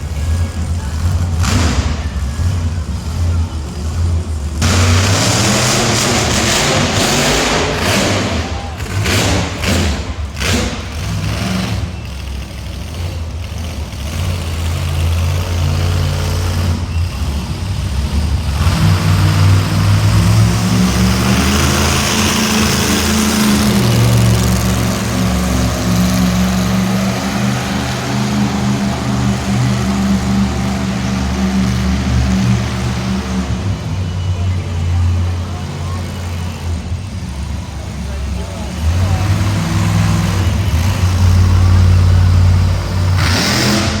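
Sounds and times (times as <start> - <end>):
truck engine revving: 0.0 - 44.0.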